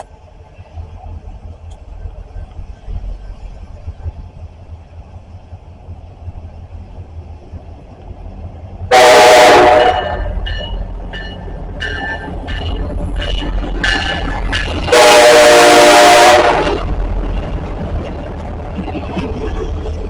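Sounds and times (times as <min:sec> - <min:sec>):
train rumbling: 0:00.0 - 0:20.0
train horn blast: 0:08.9 - 0:10.8, 0:14.8 - 0:16.8
bell ringing: 0:10.3 - 0:12.8.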